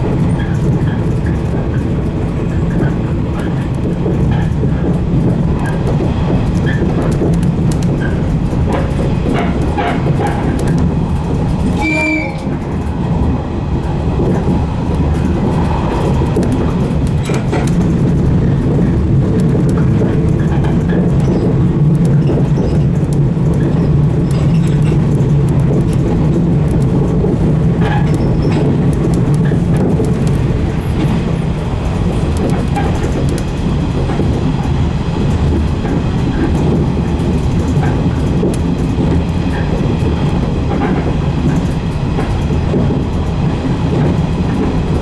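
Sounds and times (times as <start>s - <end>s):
electric train rumbling: 0.0s - 45.0s.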